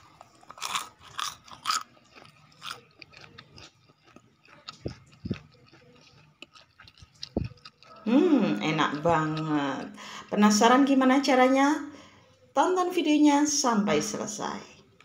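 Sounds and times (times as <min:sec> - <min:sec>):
person crunching fried food: 0:00.0 - 0:08.1.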